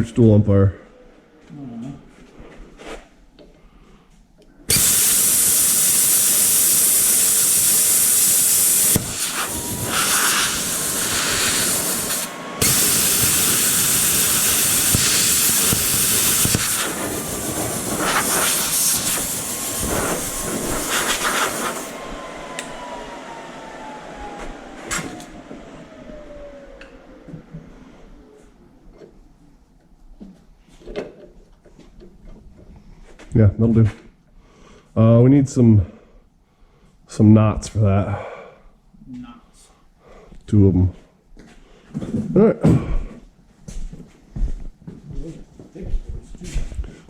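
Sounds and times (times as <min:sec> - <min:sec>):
power tool cutting metal: 0:04.7 - 0:25.4.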